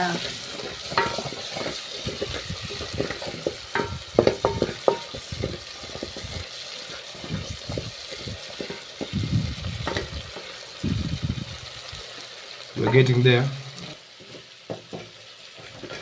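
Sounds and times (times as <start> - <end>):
food sizzling in a pot: 0.0 - 16.0
spoon clinking on pot: 0.9 - 1.7, 3.7 - 5.2.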